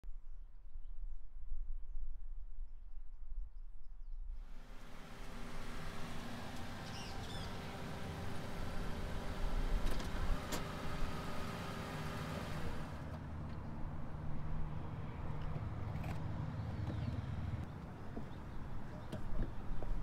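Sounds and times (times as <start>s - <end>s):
car engine running: 4.5s - 13.8s
bird chirping: 5.4s - 8.4s.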